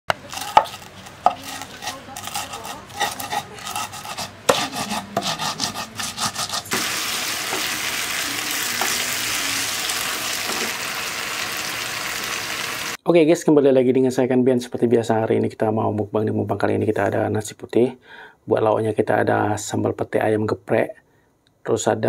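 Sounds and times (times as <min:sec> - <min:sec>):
stirring clinks and scrapes: 0:00.1 - 0:06.9
food sizzling in hot oil: 0:05.7 - 0:13.0.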